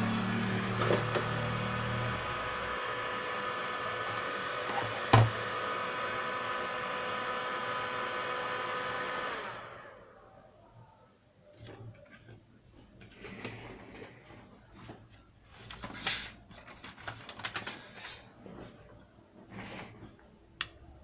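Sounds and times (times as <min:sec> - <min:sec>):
hot-air blower spinning down: 0:00.0 - 0:10.3.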